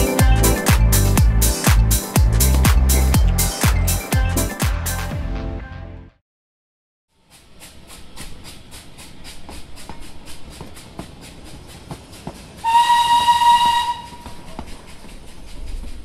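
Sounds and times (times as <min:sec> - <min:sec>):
train wheels clicking over rail joints: 0:07.2 - 0:16.0
train whistle blast: 0:12.6 - 0:14.4.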